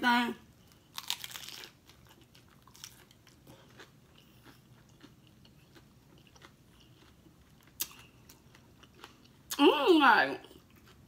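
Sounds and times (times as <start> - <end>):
faint crunchy chewing: 0.6 - 9.6.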